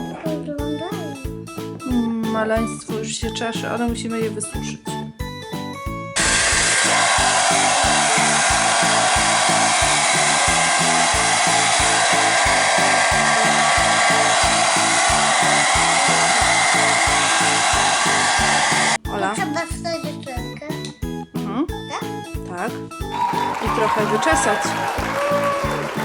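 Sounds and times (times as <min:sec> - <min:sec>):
rhythmic background music: 0:00.0 - 0:26.0
hair dryer blowing: 0:06.2 - 0:19.0, 0:23.2 - 0:26.0.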